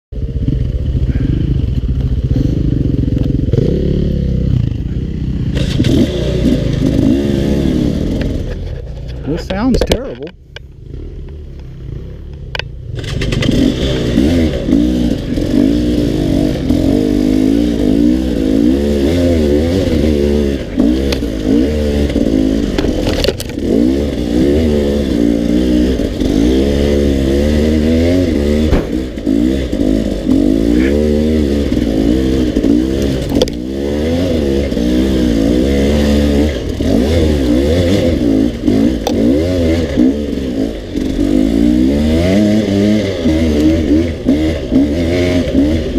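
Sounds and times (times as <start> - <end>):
dirt bike engine revving: 0.2 - 45.9
knocks and clatter: 28.5 - 30.5.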